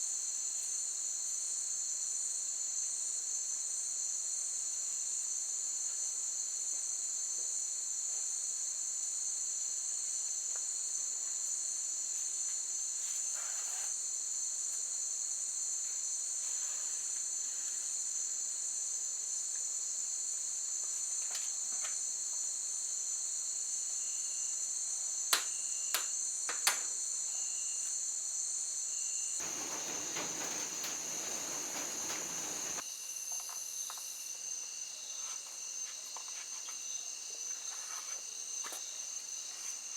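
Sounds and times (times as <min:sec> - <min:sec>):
insects trilling: 0:28.9 - 0:39.9
burst of hiss: 0:29.4 - 0:32.8.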